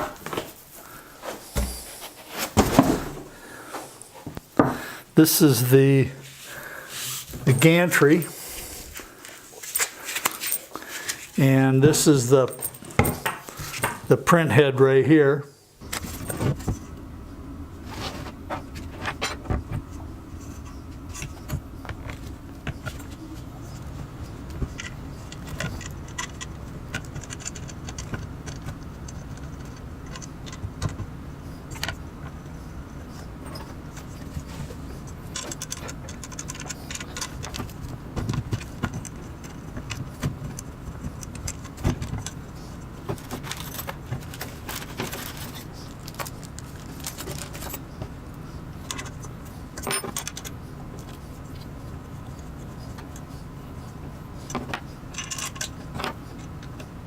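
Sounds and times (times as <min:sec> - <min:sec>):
steady low hum: 0:00.0 - 0:57.0
metal parts clinking: 0:12.2 - 0:14.0, 0:55.1 - 0:55.8.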